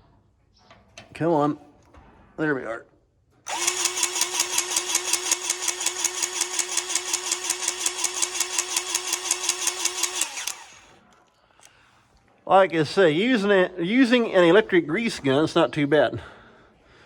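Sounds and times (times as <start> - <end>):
electric grease gun pumping: 3.5 - 11.0.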